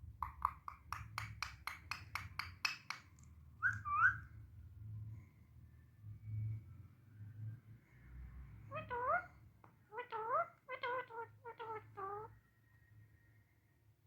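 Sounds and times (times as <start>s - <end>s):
parrot chirping: 0.2s - 4.3s, 8.7s - 12.4s
parrot whistled call: 3.6s - 4.3s.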